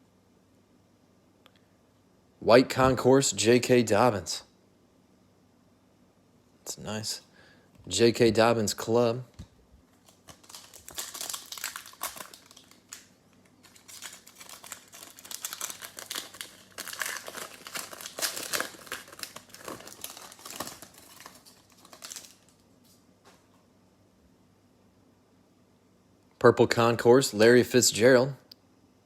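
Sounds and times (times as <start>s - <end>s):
foil wrapper crinkling: 9.9s - 22.6s.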